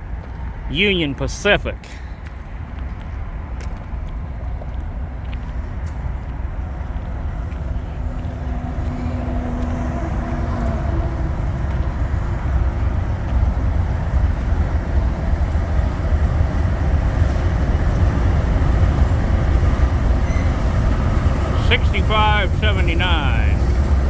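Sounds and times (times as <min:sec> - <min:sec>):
freight train rumbling past: 0:01.8 - 0:24.0.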